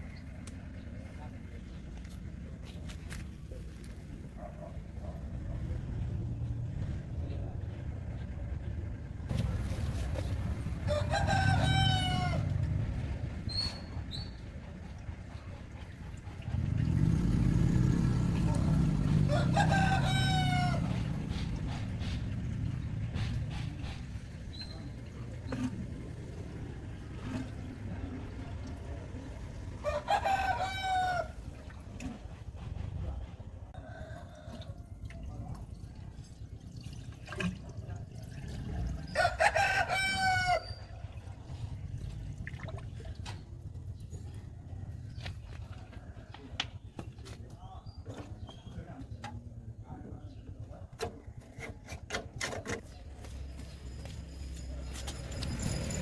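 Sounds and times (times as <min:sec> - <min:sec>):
low engine-like rumble: 0:00.0 - 0:56.0
rooster crowing: 0:10.8 - 0:12.5, 0:19.2 - 0:21.2, 0:29.8 - 0:31.4, 0:39.1 - 0:40.8.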